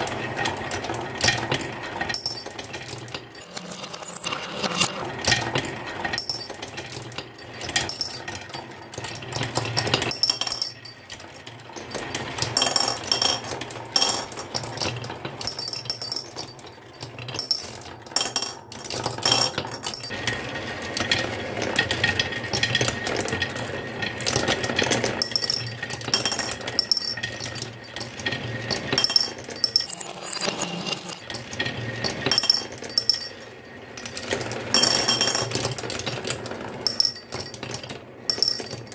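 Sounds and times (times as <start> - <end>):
marbles clattering down wooden track: 1.2 - 38.9
marbles clinking together: 29.0 - 31.2.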